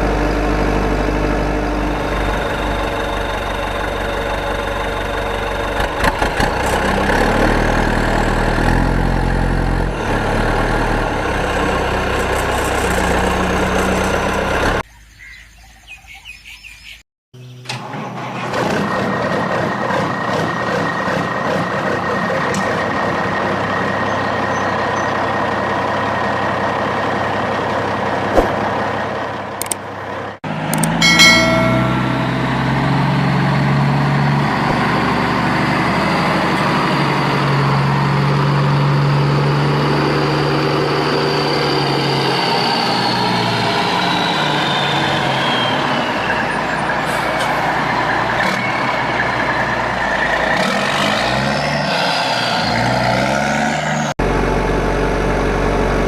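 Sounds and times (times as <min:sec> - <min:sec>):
truck engine running: 0:00.0 - 0:14.8, 0:17.8 - 0:51.6, 0:53.8 - 0:56.0
clicks: 0:29.6 - 0:29.8, 0:30.7 - 0:31.0.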